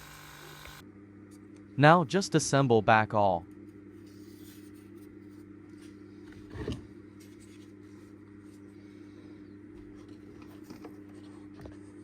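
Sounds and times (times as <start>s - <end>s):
steady low hum: 0.0s - 2.6s.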